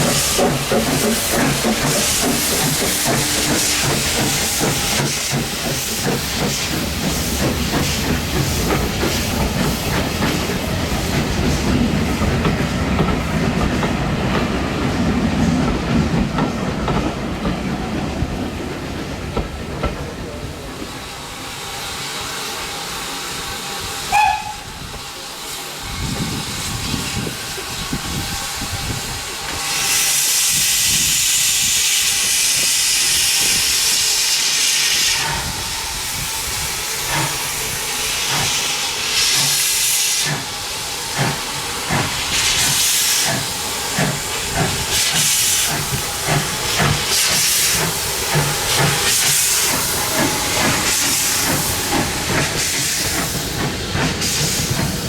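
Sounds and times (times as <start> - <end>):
steam hissing: 0.0 - 55.0
steam locomotive whistle: 2.1 - 5.3, 24.0 - 25.0.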